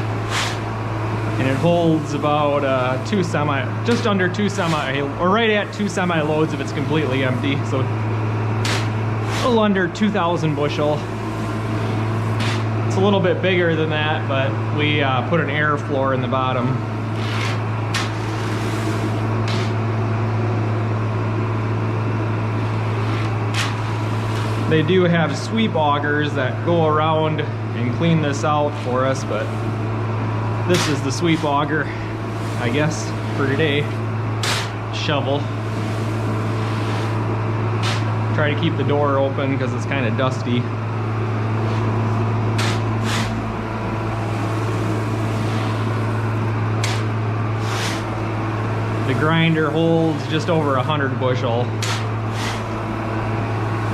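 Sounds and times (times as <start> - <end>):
low machine hum: 0.0 - 53.9
shovel scraping through corn: 0.2 - 0.6, 8.6 - 9.6, 12.2 - 12.7, 17.1 - 19.8, 30.7 - 35.2, 37.8 - 38.1, 42.6 - 43.4, 46.8 - 48.2, 51.8 - 52.7
shovel scraping corn: 0.2 - 0.7, 1.4 - 7.8, 8.6 - 9.7, 10.8 - 12.7, 17.1 - 19.8, 23.0 - 25.5, 30.6 - 38.7, 42.5 - 43.4, 44.2 - 48.2, 49.1 - 52.8.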